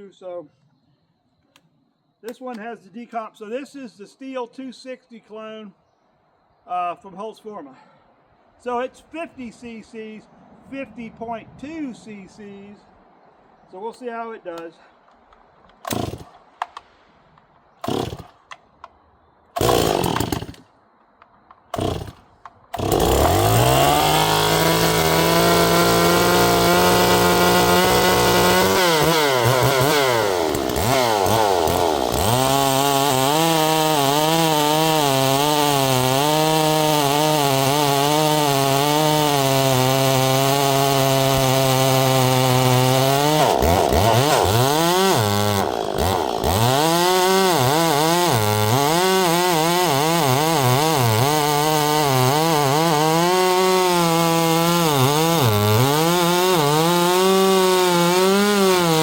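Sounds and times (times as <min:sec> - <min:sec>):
chainsaw cutting logs: 0:15.7 - 0:16.9, 0:17.8 - 0:18.9, 0:19.6 - 0:59.0
chainsaw pull-start: 0:15.8 - 0:16.9, 0:17.8 - 0:18.5, 0:19.6 - 0:20.6, 0:21.7 - 0:59.0.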